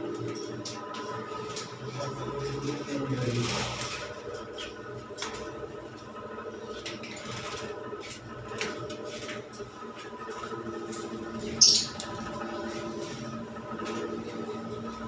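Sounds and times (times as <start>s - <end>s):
bird squawk: 11.4s - 12.1s
pet birds chirping: 11.4s - 12.2s.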